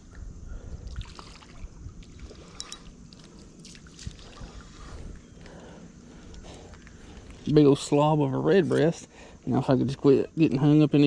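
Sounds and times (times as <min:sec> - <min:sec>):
wind on microphone: 0:00.0 - 0:02.9, 0:03.9 - 0:07.5
faint water sounds: 0:00.0 - 0:11.0.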